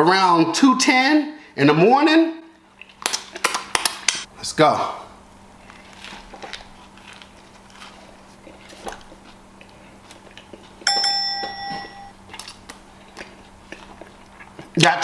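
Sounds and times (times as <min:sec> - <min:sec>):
person chewing a sandwich: 0:02.6 - 0:04.1, 0:05.4 - 0:10.9, 0:11.8 - 0:14.8
bell-like ding: 0:10.9 - 0:12.2.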